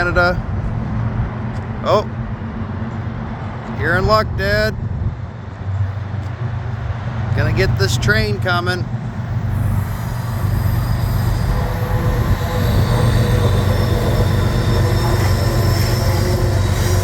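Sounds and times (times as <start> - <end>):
train cars rumbling: 0.0 - 17.0
high wheel squeals: 8.9 - 17.0.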